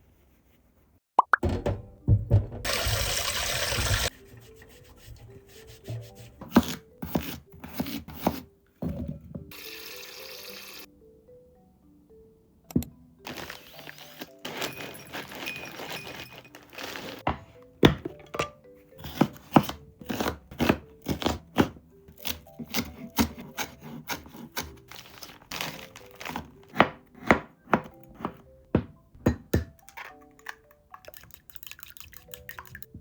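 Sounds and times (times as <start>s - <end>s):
knife chopping on cutting board: 5.9s - 8.4s, 19.0s - 24.9s, 26.2s - 29.7s.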